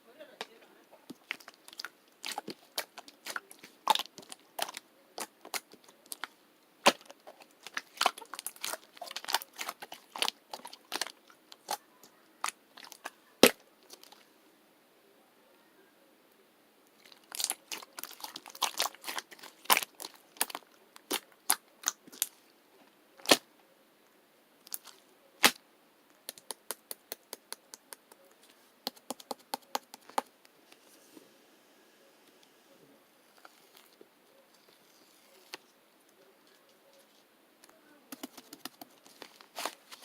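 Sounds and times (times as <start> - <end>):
slime squeezed with wet pops: 1.2 - 11.8, 17.0 - 22.3.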